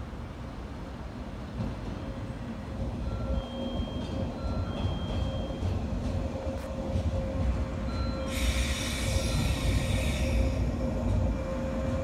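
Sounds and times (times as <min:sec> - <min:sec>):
train wheels rumbling: 0:01.1 - 0:12.0
loud hiss: 0:08.3 - 0:10.5.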